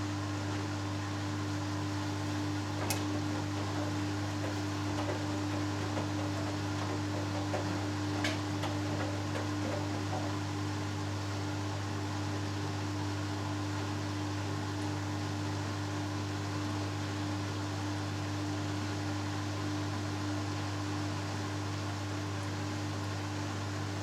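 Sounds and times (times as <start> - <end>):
washing machine drum spinning: 2.4 - 11.6.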